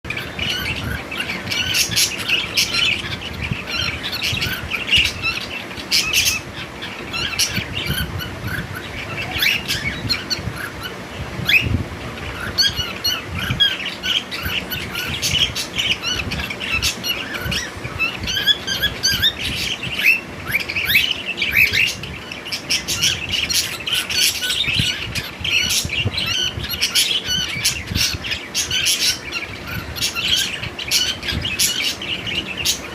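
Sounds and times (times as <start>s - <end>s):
cockatiel chirps and squawks: 0.1s - 32.8s.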